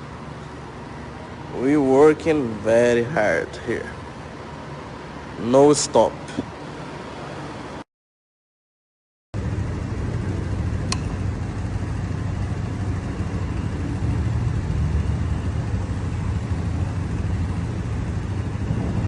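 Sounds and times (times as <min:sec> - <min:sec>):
vehicle engine deep rumble: 0:09.4 - 0:19.0
sharp tick: 0:10.8 - 0:11.2.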